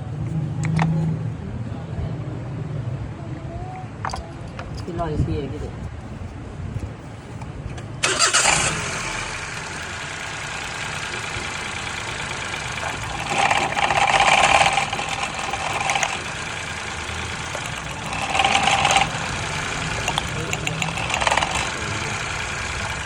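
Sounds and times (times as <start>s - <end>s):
car engine starting and running: 7.8s - 23.0s.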